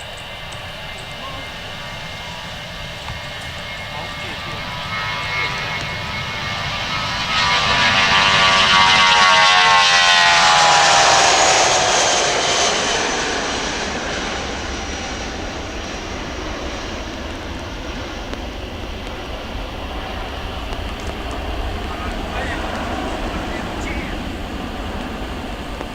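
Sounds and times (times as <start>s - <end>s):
jet engines roaring past: 0.0s - 25.9s.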